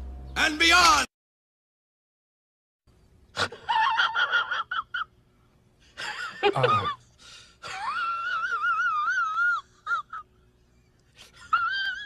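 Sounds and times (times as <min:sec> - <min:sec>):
man wheezing laugh: 0:03.4 - 0:05.1, 0:05.9 - 0:07.0, 0:07.6 - 0:10.3.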